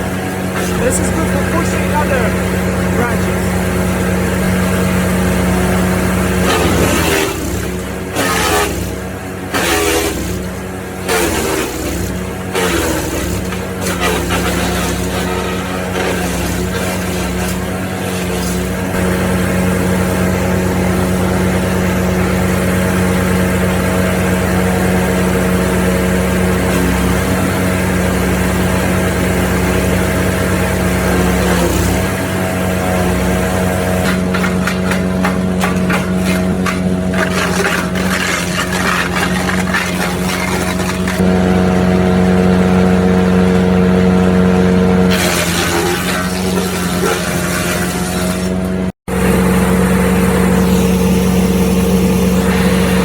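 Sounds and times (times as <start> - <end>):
wood chipper engine running: 0.0 - 53.0
branches cracking in chipper: 6.4 - 19.1, 33.8 - 41.2, 45.1 - 48.8.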